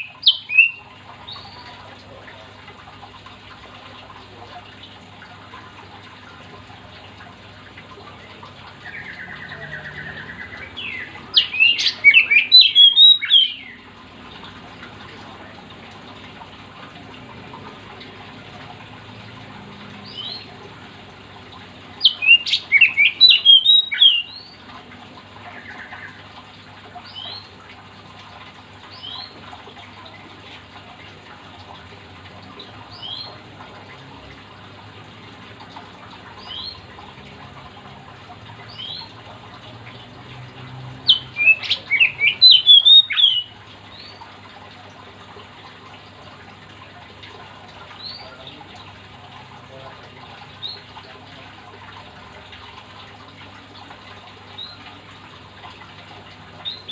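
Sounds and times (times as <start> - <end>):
bird singing whistled phrases: 0.0 - 0.8, 8.9 - 13.7, 22.0 - 24.4, 41.1 - 43.5.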